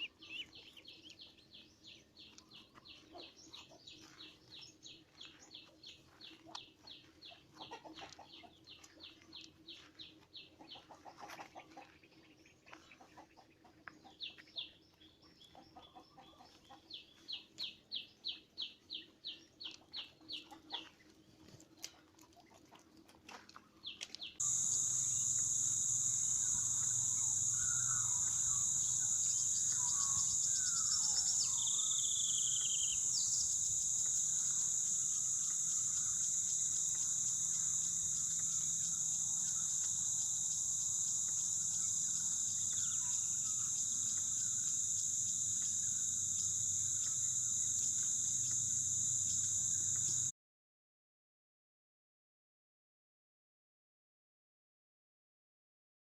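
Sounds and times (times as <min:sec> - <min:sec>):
faint fowl sounds: 0:07.3 - 0:08.6, 0:10.6 - 0:12.0
bird calling repeated high notes: 0:24.4 - 0:40.7
shrill insect chorus: 0:24.4 - 0:50.3.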